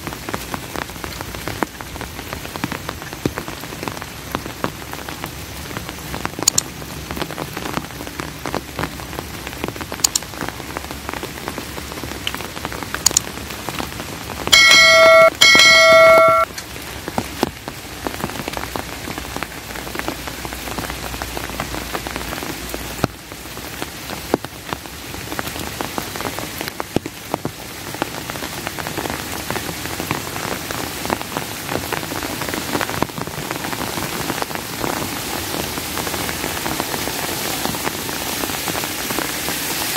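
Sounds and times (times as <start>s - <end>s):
sharp raindrops striking: 0.0s - 39.9s
steady rain falling: 0.0s - 39.9s
bell ringing: 14.6s - 16.5s.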